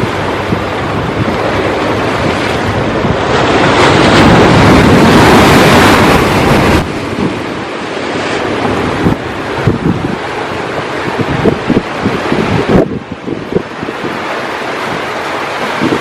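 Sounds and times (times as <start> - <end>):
sea surf: 0.0 - 16.0
wind buffeting microphone: 0.0 - 16.0.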